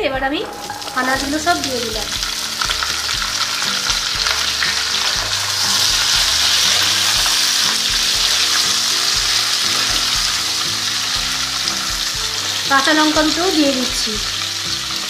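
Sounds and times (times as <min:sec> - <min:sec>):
vegetables sizzling in oil: 0:00.4 - 0:15.0.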